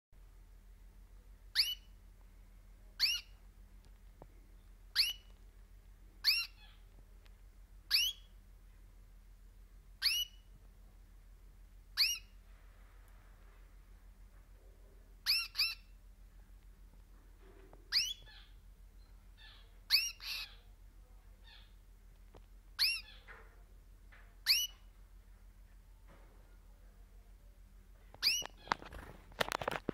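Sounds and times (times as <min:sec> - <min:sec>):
canary shrill call notes: 0:01.5 - 0:01.9, 0:03.0 - 0:03.3, 0:04.9 - 0:05.3, 0:06.2 - 0:06.8, 0:07.9 - 0:08.3, 0:10.0 - 0:10.5, 0:12.0 - 0:12.4, 0:15.2 - 0:15.9, 0:17.9 - 0:18.6, 0:19.4 - 0:20.6, 0:22.8 - 0:23.3, 0:24.4 - 0:24.9, 0:28.2 - 0:28.7.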